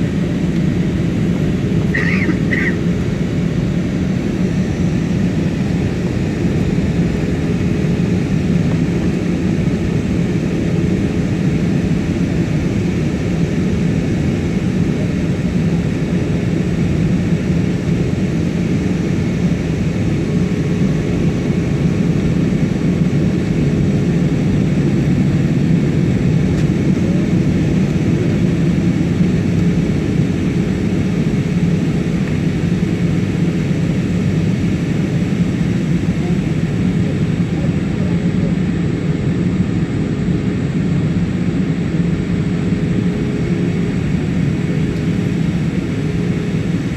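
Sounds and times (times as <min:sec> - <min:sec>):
jet engines and rushing air: 0:00.0 - 0:46.9.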